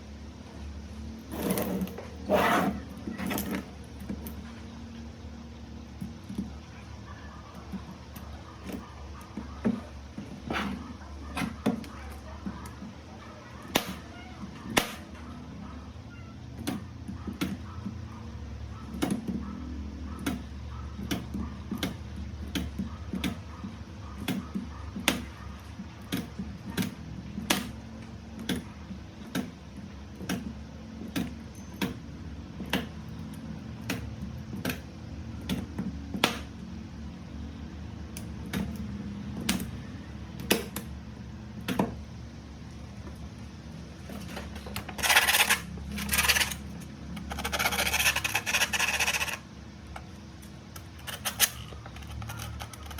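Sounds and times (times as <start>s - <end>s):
spot welder snapping: 13.7s - 14.1s, 14.7s - 15.2s, 26.0s - 32.0s.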